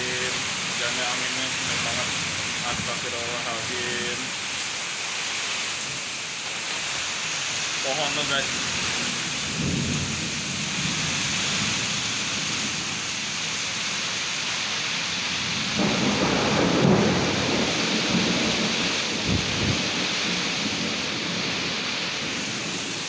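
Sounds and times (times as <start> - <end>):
strong wind gusting: 0.0 - 4.3, 8.1 - 13.0, 15.8 - 23.0
heavy downpour: 0.0 - 23.0.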